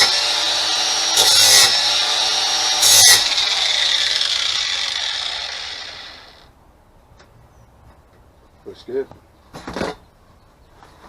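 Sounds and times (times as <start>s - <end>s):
grinding against metal blade: 0.0s - 6.4s
power tool motor whine: 0.0s - 6.5s.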